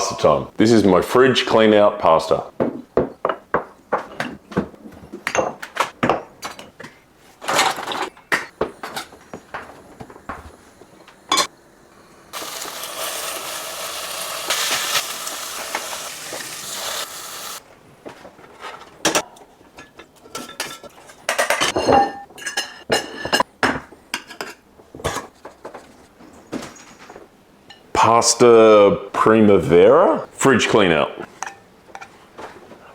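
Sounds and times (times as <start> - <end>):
food hissing in a pan: 11.8 - 17.6
utensils clinking against pots: 19.0 - 23.5, 31.3 - 32.2.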